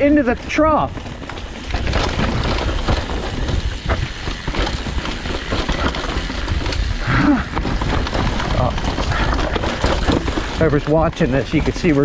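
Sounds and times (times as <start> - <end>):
bike knocks and rattles: 0.0 - 12.0
bike tyres on muddy trail: 0.0 - 12.0
wind buffeting microphone: 0.0 - 12.0.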